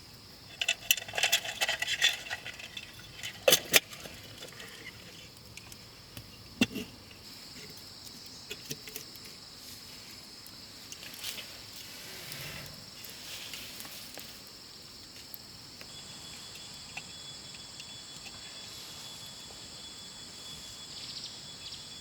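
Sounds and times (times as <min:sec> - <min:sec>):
high insect drone: 0:00.0 - 0:22.0
clicks and crackles: 0:00.5 - 0:09.4, 0:10.8 - 0:11.8.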